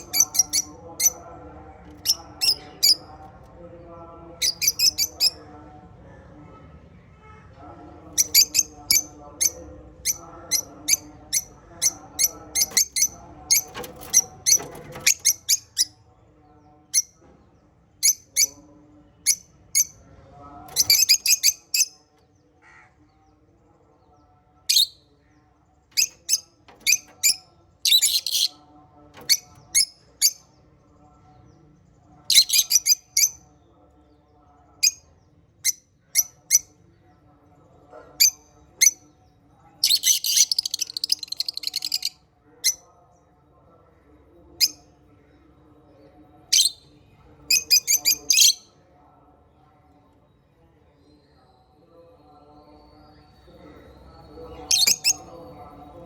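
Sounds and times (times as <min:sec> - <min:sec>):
parrots chirping: 0:00.0 - 0:01.2, 0:01.9 - 0:03.1, 0:04.4 - 0:05.4, 0:08.2 - 0:16.0, 0:20.8 - 0:21.9, 0:26.0 - 0:28.6, 0:32.3 - 0:33.4, 0:39.8 - 0:42.8, 0:54.6 - 0:55.3
faint soft chatter: 0:00.0 - 0:56.0.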